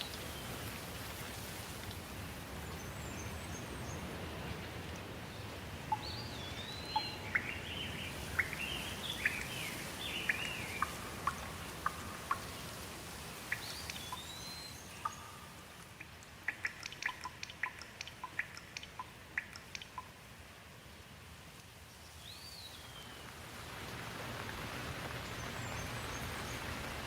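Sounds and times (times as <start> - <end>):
water drips pattering: 0.0 - 20.4, 23.0 - 27.0
rain hissing: 0.0 - 27.0
birds singing: 2.6 - 12.8, 13.4 - 15.8.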